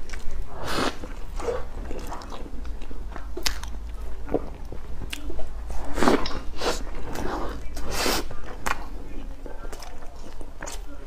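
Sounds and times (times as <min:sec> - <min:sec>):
wet chewing and lip smacking: 0:01.1 - 0:05.5.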